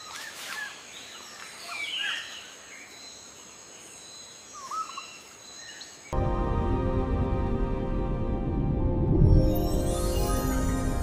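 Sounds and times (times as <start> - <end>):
music: 6.2 - 11.0.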